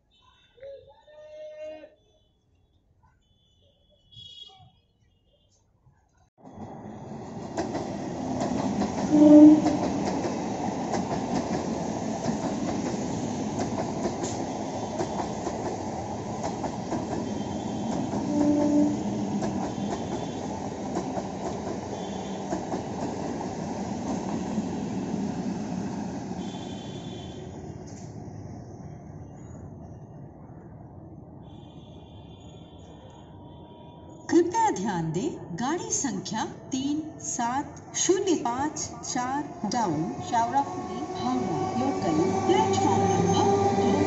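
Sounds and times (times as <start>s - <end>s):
train wheels on rail: 6.4s - 29.8s, 38.8s - 44.0s
train horn toots: 9.0s - 9.9s, 17.2s - 20.6s, 26.4s - 27.6s.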